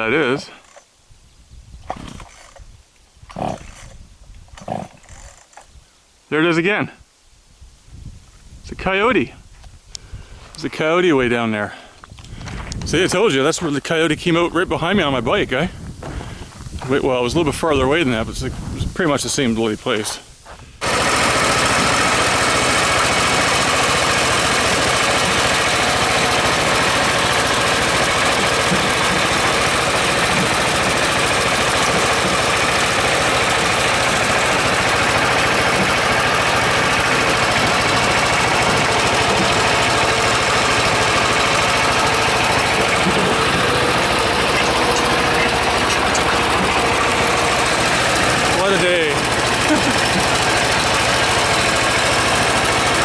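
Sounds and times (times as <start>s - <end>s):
tractor engine knocking: 15.8s - 19.9s, 20.8s - 53.0s.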